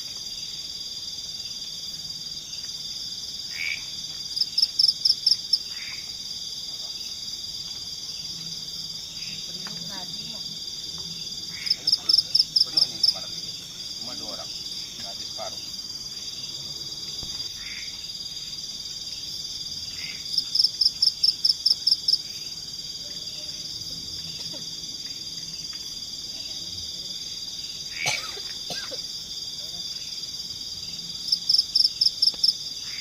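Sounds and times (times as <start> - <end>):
insect chorus trilling: 0.0 - 33.0
pulsing insect call: 0.0 - 33.0.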